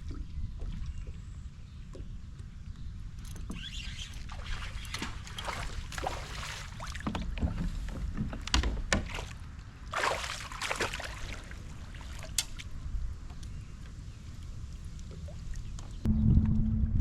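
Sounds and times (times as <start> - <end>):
water swish: 3.7 - 7.1, 9.1 - 12.9
low rumble: 16.0 - 17.0.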